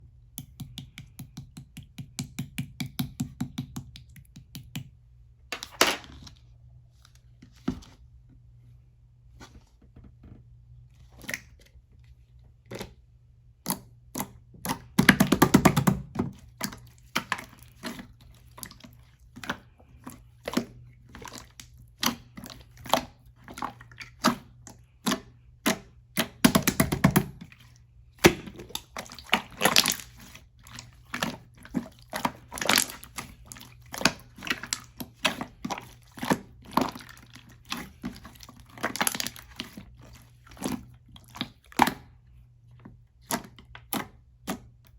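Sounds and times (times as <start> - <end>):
slime squished by hand: 13.6 - 42.1.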